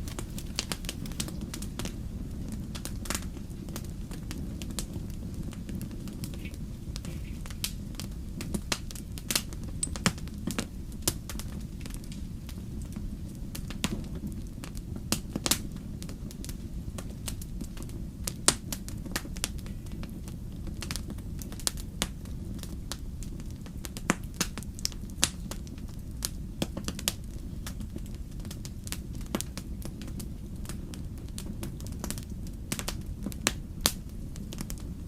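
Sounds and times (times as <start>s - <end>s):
wood fire crackling: 0.0s - 1.5s.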